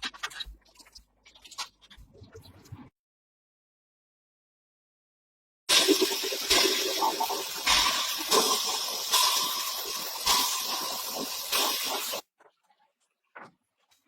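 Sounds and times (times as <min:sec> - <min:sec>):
spray hissing in bursts: 0:05.8 - 0:12.2.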